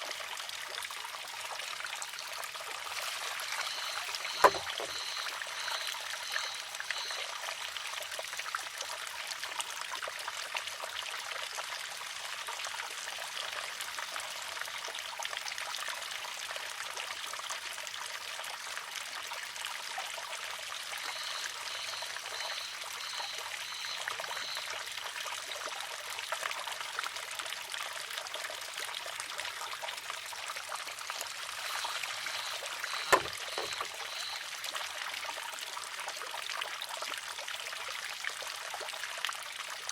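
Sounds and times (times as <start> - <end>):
water trickling: 0.0 - 15.7, 18.6 - 39.9
high chirps: 3.6 - 7.2, 21.1 - 24.6, 31.6 - 34.4
bamboo arm clacking on stone: 4.2 - 5.0.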